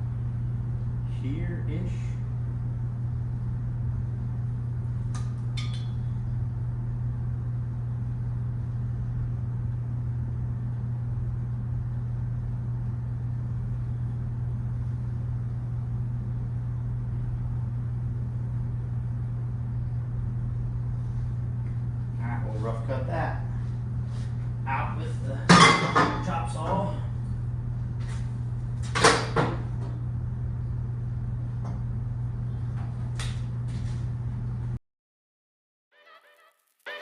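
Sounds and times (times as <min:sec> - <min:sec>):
low hum: 0:00.0 - 0:25.5.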